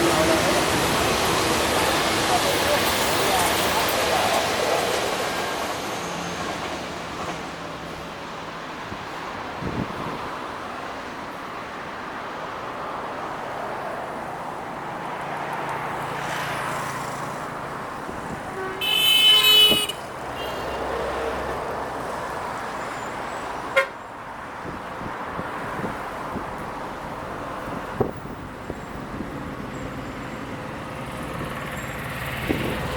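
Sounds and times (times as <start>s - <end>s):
freight train rumbling past: 0.0s - 23.8s, 24.8s - 32.9s
train knocks: 18.2s - 20.1s
train horn toot: 18.4s - 20.9s.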